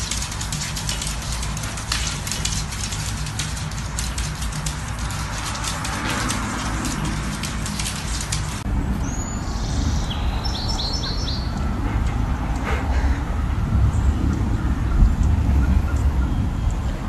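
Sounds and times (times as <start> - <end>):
rapid clicks and taps: 0.0 - 8.6
steady low rumble: 0.0 - 17.0
small birds chirping: 9.0 - 11.7.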